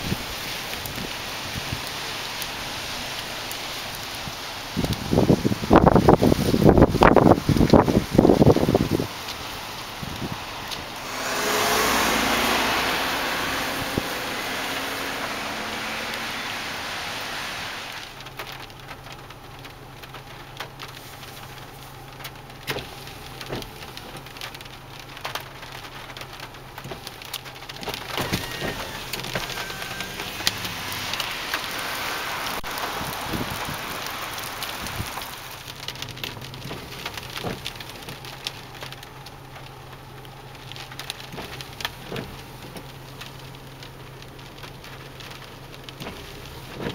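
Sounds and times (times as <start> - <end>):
rain pattering: 0.0 - 46.9
rushing noise: 5.2 - 18.2, 28.0 - 35.6.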